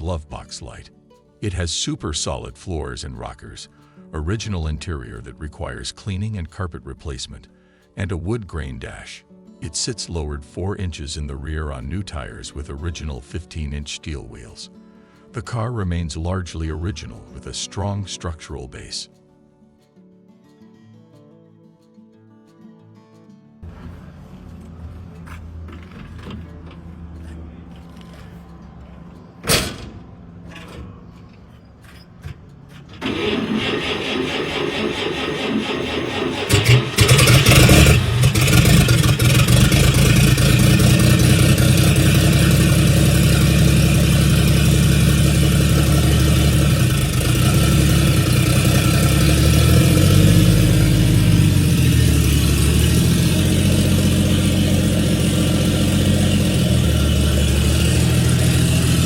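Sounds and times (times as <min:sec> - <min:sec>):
car engine cranking and running: 0:23.7 - 0:59.0.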